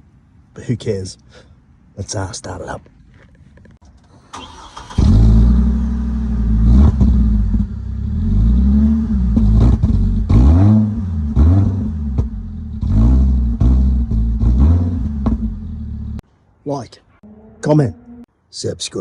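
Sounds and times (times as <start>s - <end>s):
engine starter cranking: 4.0s - 5.6s
loud engine idling and revving: 4.9s - 16.2s.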